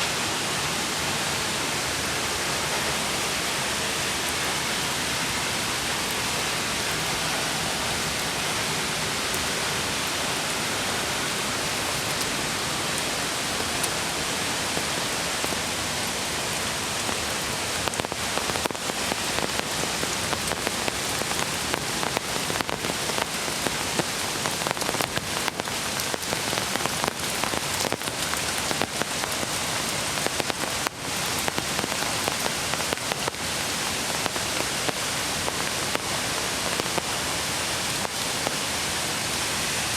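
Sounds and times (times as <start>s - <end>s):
creek rushing: 0.0s - 39.9s
raindrops tapping: 16.5s - 36.1s.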